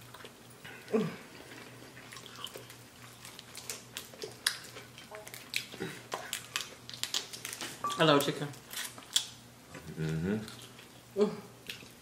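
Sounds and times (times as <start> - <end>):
chewing crunchy chicken wings: 0.0 - 7.8.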